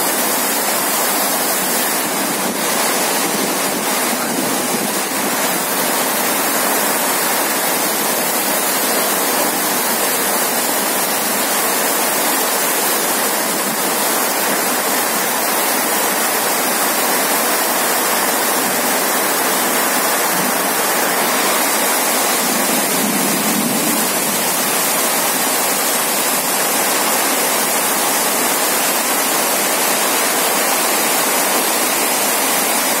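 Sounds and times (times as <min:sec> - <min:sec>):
heavy rain hissing: 0:00.0 - 0:33.0
water pouring off metal roof: 0:00.0 - 0:33.0.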